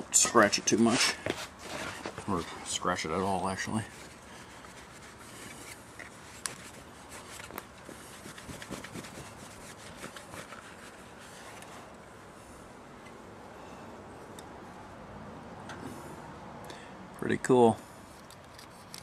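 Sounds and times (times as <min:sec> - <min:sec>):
towel rubbing on metal: 0:03.7 - 0:11.5.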